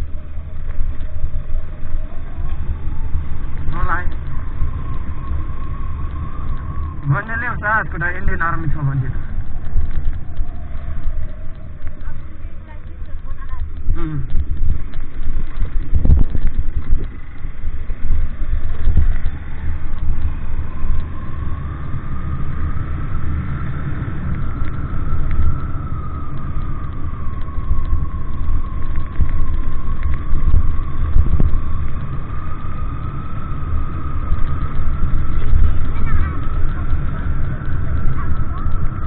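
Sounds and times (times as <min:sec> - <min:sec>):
faint whine: 0:00.0 - 0:39.0
vehicle engine low rumble: 0:00.0 - 0:39.0.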